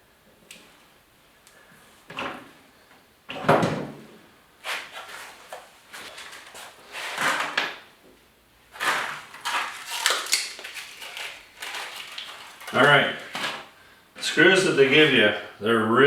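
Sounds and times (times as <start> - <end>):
tools and hardware clattering: 8.8 - 13.6.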